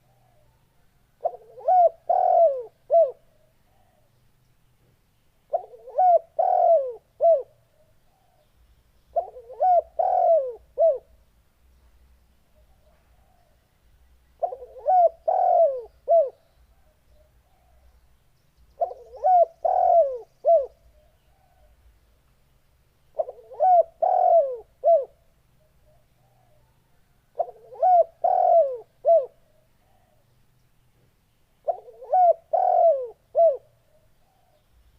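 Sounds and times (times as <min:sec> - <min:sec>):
dove cooing: 0:01.2 - 0:04.1, 0:05.5 - 0:08.5, 0:09.1 - 0:11.2, 0:14.4 - 0:17.9, 0:18.8 - 0:21.8, 0:23.1 - 0:30.3, 0:31.6 - 0:34.6.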